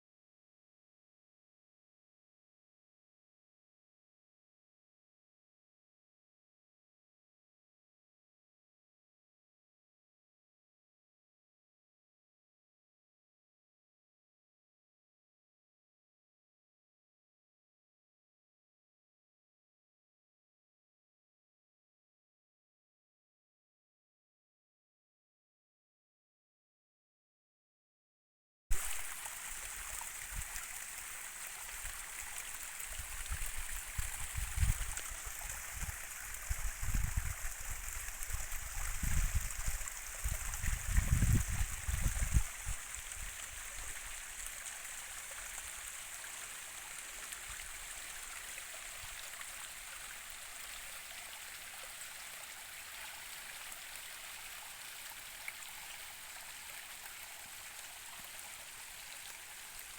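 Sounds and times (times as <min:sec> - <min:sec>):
flowing stream: 0:28.7 - 0:59.9.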